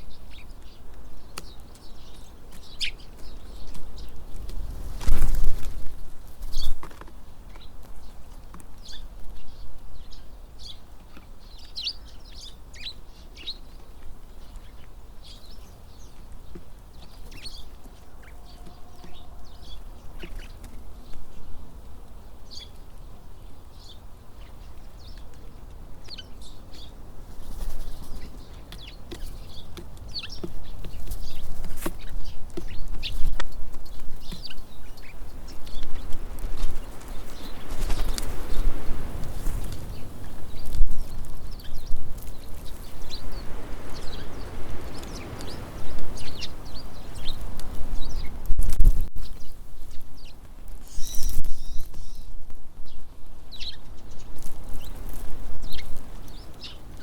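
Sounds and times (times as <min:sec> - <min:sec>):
wind rumbling on microphone: 0:00.0 - 0:10.8, 0:14.2 - 0:57.0
birds chirping: 0:00.0 - 0:48.4, 0:49.1 - 0:57.0.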